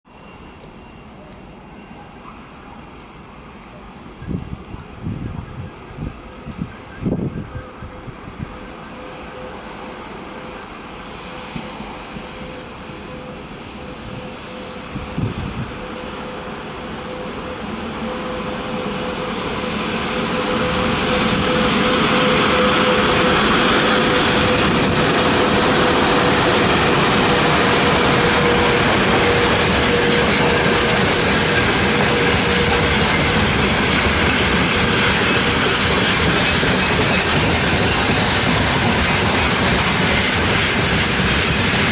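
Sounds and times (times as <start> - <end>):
freight train rolling past: 0.1 - 41.9.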